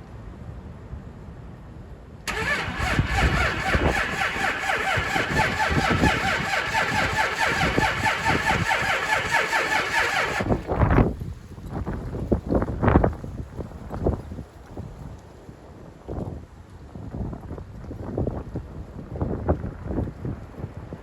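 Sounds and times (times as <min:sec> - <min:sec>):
engine cold starting and running: 0:02.3 - 0:11.0.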